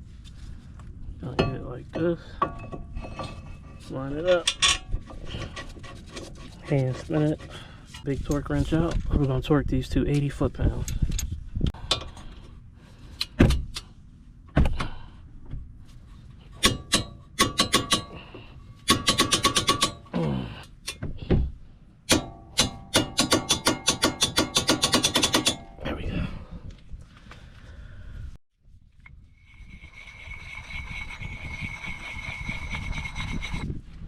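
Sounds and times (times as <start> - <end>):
metallic knocks and clanks: 1.2 - 6.6, 16.6 - 20.1, 20.8 - 25.8.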